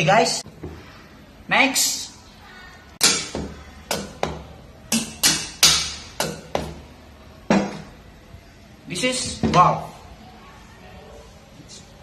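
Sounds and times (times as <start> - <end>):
hammer striking metal: 3.0 - 6.8.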